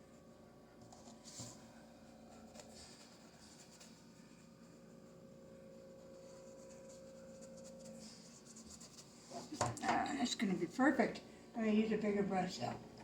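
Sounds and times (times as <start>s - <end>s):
low steady hum: 0.0s - 13.0s
paintbrush strokes: 0.9s - 9.6s.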